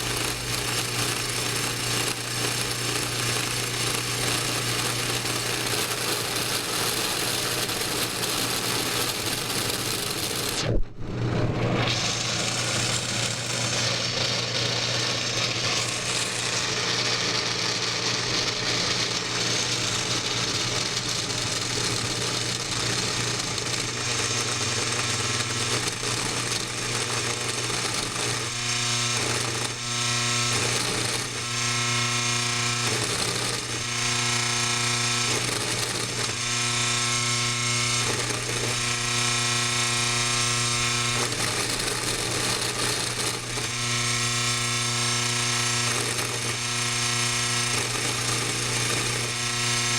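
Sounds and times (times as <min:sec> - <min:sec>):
motor humming: 0:00.0 - 0:49.9
pitched whine: 0:09.0 - 0:22.7.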